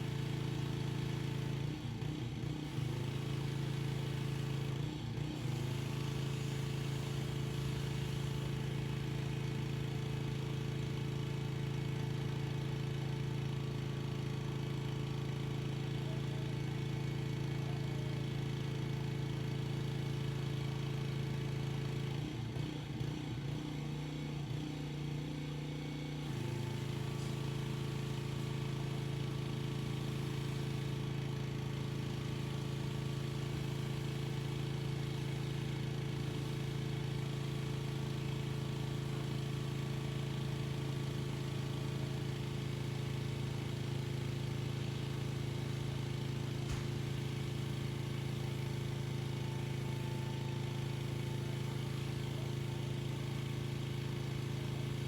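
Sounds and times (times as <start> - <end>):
pressure washer engine humming: 33.4 - 55.0.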